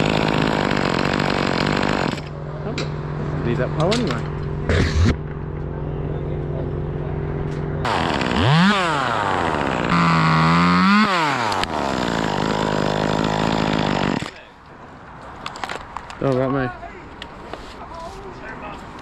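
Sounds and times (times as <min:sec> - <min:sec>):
chainsaw idling and revving: 0:00.0 - 0:02.4, 0:07.8 - 0:14.5.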